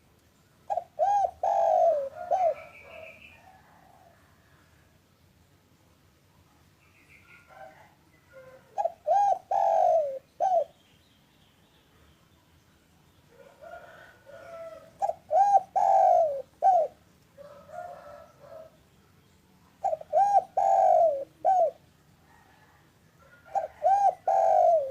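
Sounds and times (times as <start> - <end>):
dove cooing: 0.7 - 4.3, 7.4 - 10.8, 13.4 - 18.8, 19.8 - 24.9.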